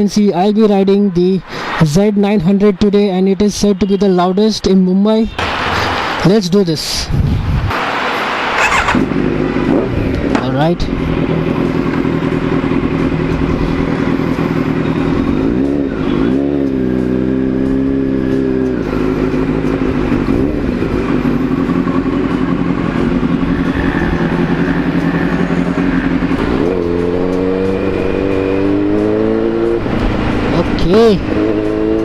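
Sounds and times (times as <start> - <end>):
motorcycle engine revving: 7.7 - 32.0.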